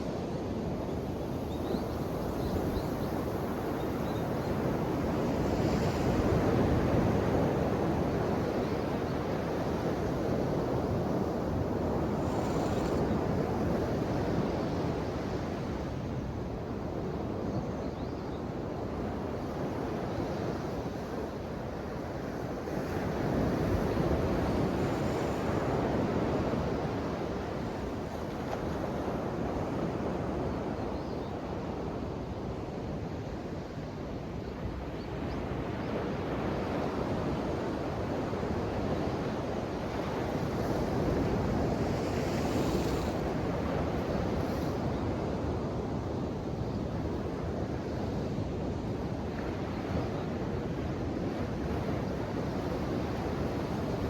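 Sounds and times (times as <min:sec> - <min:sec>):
ocean waves breaking on shore: 0:35.5 - 0:54.0.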